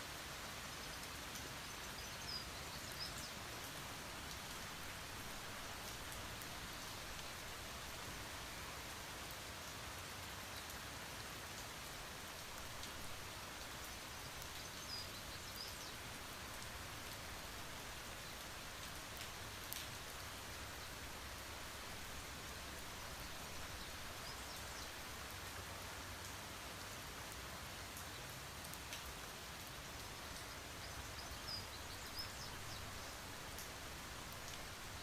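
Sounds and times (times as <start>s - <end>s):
steady rain falling: 0.0s - 35.0s
raindrop ticks: 19.1s - 20.0s, 28.0s - 29.1s.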